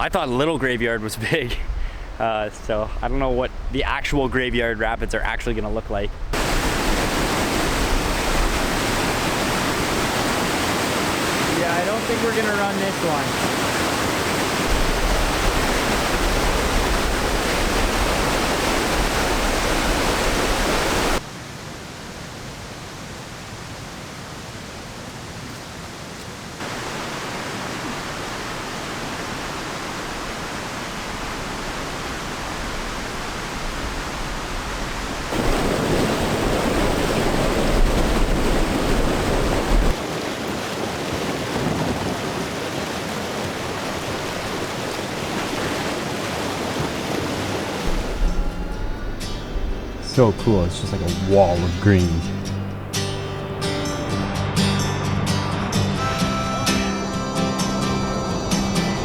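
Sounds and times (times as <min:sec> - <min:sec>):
whitewater rapids rushing: 0:06.4 - 0:21.2, 0:26.6 - 0:48.6, 0:50.0 - 0:52.4.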